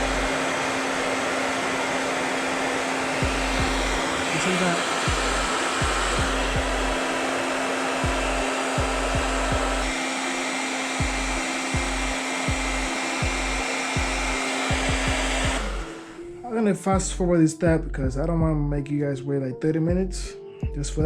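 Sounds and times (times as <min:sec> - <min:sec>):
blow dryer running: 0:00.0 - 0:17.4.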